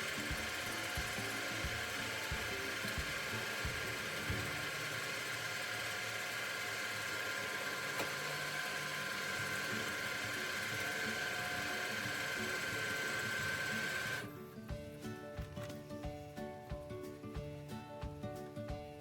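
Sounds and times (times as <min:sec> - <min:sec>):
lathe motor whine: 0:00.0 - 0:14.2.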